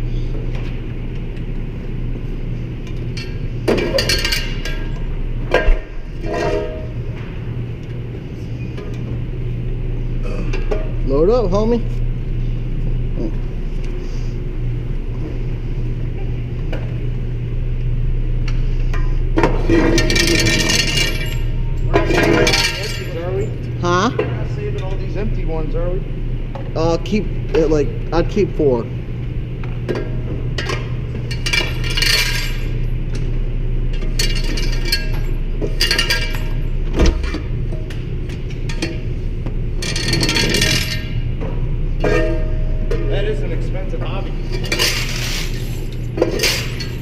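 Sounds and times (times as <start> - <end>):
low hum: 0.0 - 47.0.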